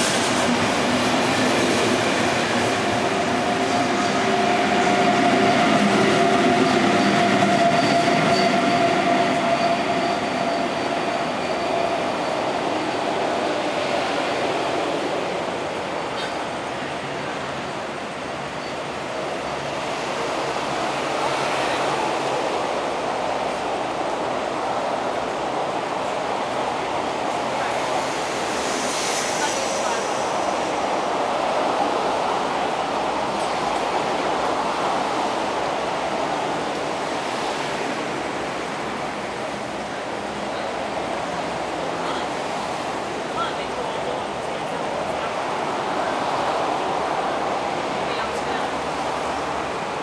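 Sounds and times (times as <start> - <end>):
train wheels rumbling on rail: 0.0 - 50.0.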